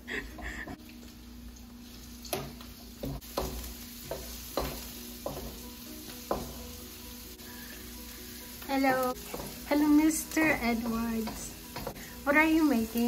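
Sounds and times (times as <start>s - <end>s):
garlic and onions sizzling in oil: 0.8s - 13.0s
spatula knocking against pan: 2.4s - 6.7s, 9.2s - 9.7s
spatula stirring: 9.2s - 13.0s.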